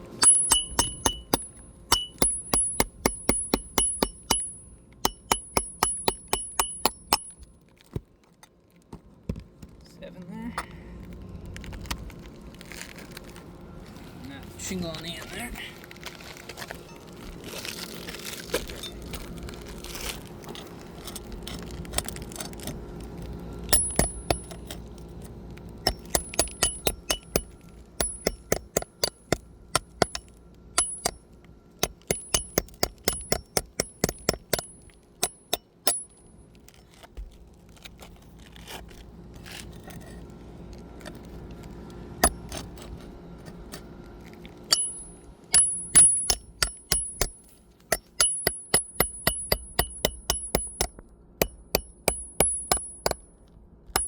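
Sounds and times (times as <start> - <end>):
sharp metallic taps: 0.2 - 7.5, 25.8 - 31.2, 31.8 - 36.2, 44.7 - 53.3
scraping and rustling: 11.4 - 23.7, 36.6 - 44.7.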